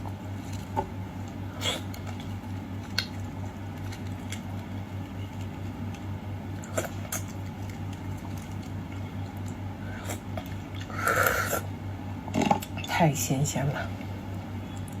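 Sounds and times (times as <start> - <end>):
steady low hum: 0.0 - 15.0
wet mouth squishing sounds: 6.6 - 11.7.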